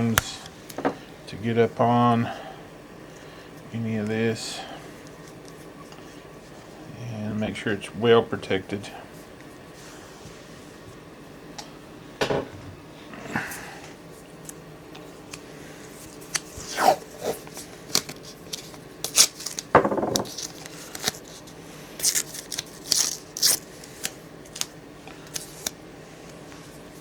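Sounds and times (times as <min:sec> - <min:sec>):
adhesive tape ripping: 0:16.3 - 0:21.4, 0:22.0 - 0:24.7.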